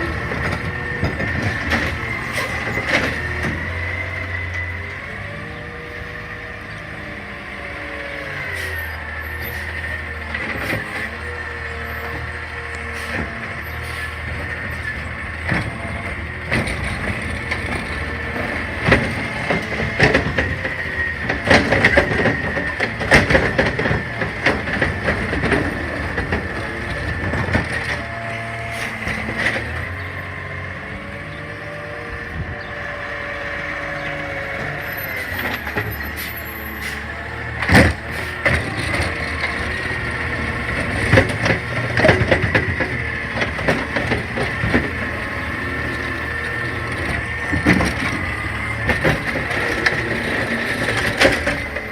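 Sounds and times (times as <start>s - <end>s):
garbage truck engine whining: 0.0s - 51.9s.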